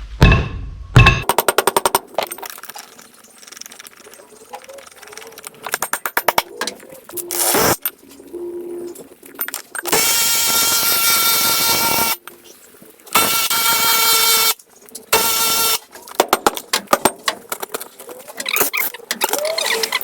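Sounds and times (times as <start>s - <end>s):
impact wrench bursts: 13.2s - 14.6s.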